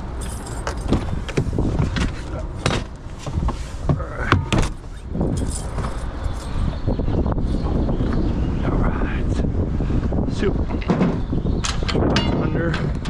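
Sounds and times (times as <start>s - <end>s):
wind rumble on microphone: 0.0s - 13.0s
metal door squeak: 4.3s - 6.6s.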